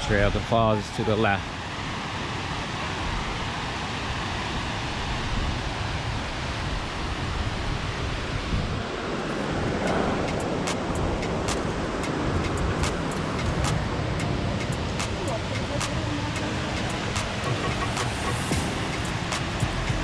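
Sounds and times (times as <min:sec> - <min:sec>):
sharp ticks and crackles: 0:10.3 - 0:20.0.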